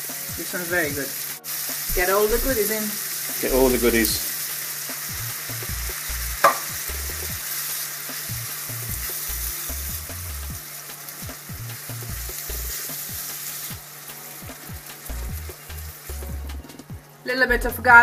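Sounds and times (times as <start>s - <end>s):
food sizzling in a pan: 0.0s - 18.0s
spoon scraping and knocking pan: 5.7s - 9.2s.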